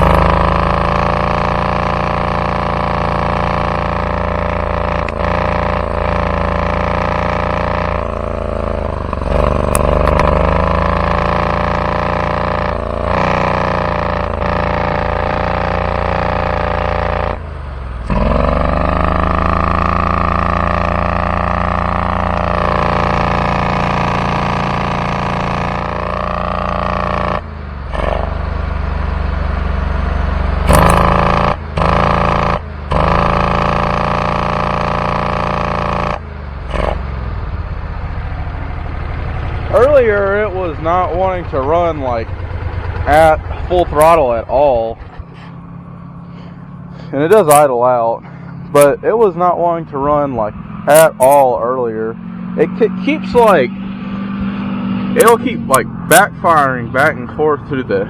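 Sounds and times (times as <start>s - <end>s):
mower engine running: 0.0s - 58.0s.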